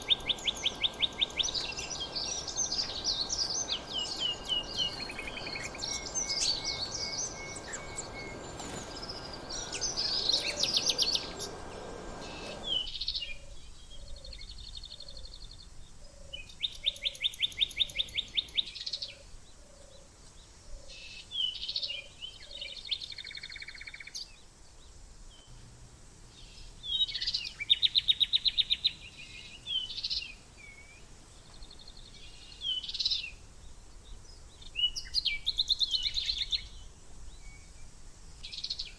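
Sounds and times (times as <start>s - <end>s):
steady background noise: 0.0s - 12.8s
songbirds singing and calling: 0.0s - 25.6s, 26.3s - 38.9s.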